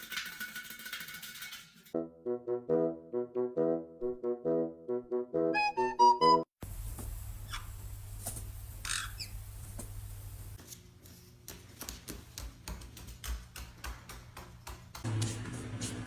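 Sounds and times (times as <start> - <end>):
lovebird chirping and squawking: 8.8 - 9.4.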